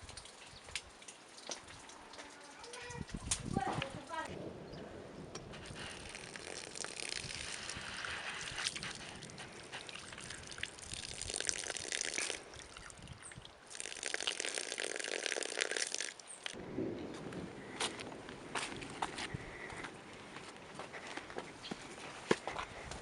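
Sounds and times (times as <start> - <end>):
water trickling and splashing: 0.0 - 23.0.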